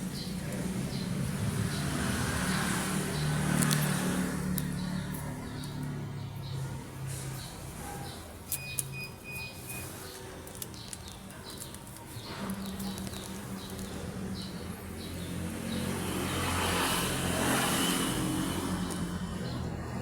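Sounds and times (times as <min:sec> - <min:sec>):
vehicle engine passing: 0:00.0 - 0:07.9, 0:12.2 - 0:20.0.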